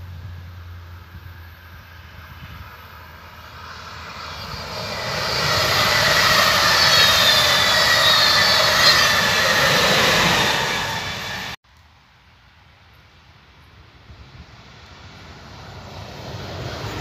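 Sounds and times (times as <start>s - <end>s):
wavering high whine: 0.7s - 11.6s
train wheels rushing on rails: 0.8s - 11.6s, 14.5s - 17.0s.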